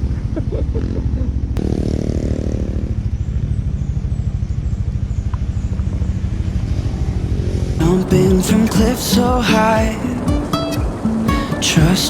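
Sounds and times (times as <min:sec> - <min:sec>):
motorcycle engine rumble: 0:00.0 - 0:12.0.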